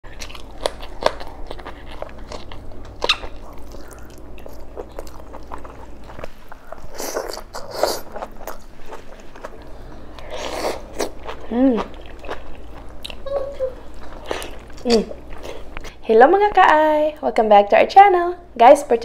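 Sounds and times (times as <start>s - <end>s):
biting and chewing: 0.0s - 13.3s.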